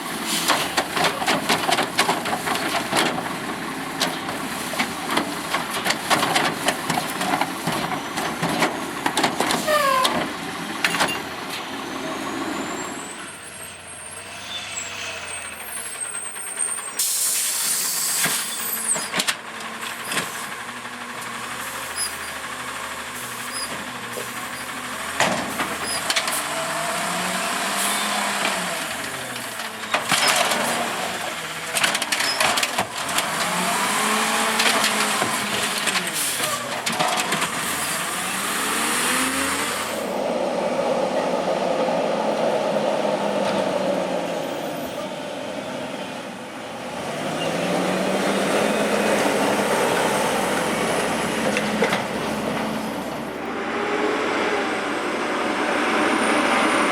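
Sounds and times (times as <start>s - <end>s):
diesel engine revving: 0.0s - 56.9s
air brake hiss: 17.0s - 18.6s.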